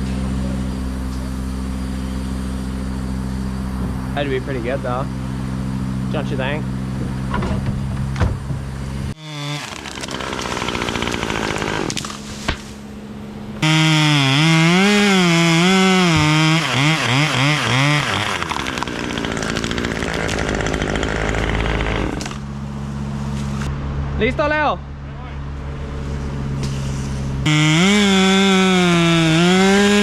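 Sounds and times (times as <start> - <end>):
chainsaw cutting wood: 9.2 - 12.8, 13.6 - 22.5, 27.4 - 30.0.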